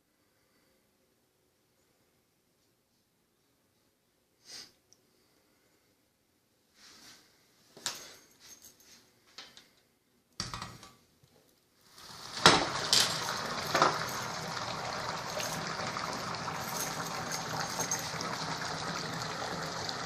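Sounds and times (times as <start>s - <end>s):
water running from tap: 11.9s - 20.0s
pots and dishes clattering: 12.3s - 15.7s.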